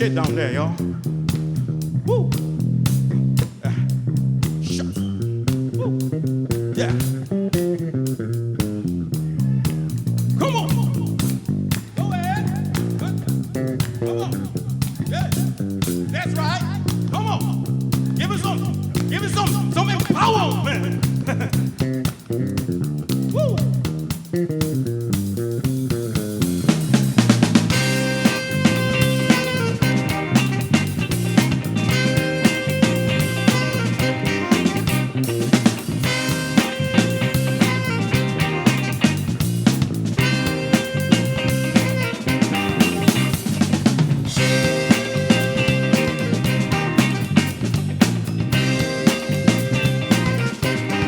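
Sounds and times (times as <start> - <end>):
bass guitar groove: 0.0 - 51.0
funk band playing: 0.0 - 51.0
guitar: 0.0 - 51.0
drum hits: 25.7 - 51.0.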